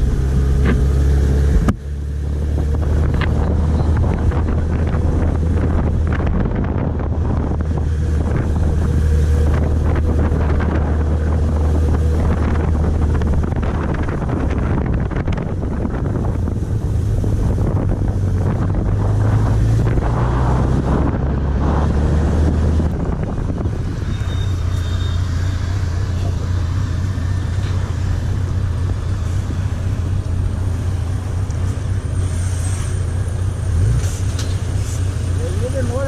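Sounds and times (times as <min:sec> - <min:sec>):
wind rush: 0:00.0 - 0:36.0
motorcycle engine running: 0:22.8 - 0:36.0.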